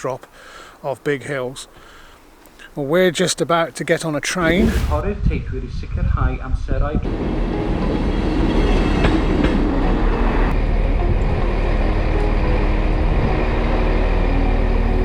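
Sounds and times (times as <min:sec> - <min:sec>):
faint clicks: 0:02.4 - 0:02.7
train rumbling: 0:07.0 - 0:15.0.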